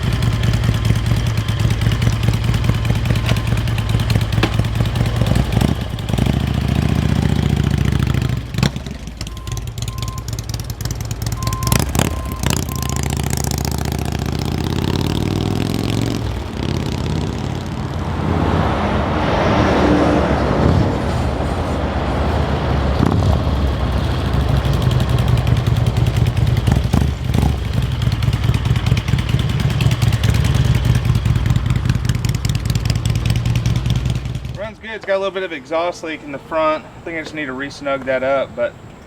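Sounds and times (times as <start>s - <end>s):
motorcycle engine running: 0.0s - 18.2s, 23.0s - 34.8s
rush of noise: 17.2s - 24.4s.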